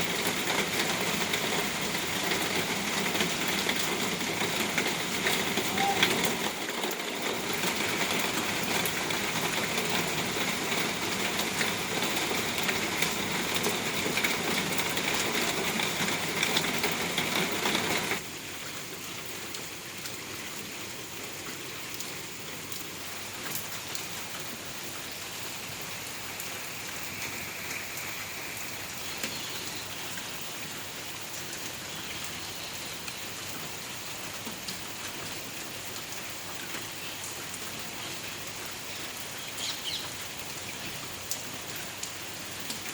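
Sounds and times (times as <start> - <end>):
rain falling: 0.0 - 42.9.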